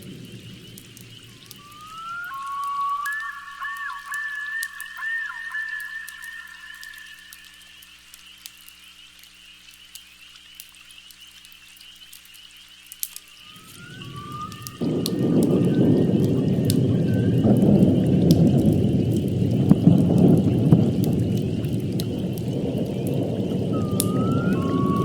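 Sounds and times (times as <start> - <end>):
thunder rolling: 0.0 - 7.5, 13.4 - 25.0
high chirring chorus: 0.0 - 7.8, 13.5 - 25.0
wavering whistling tone: 0.0 - 7.8, 13.4 - 25.0
fire crackling: 0.0 - 8.2, 13.0 - 25.0
rain: 0.0 - 25.0.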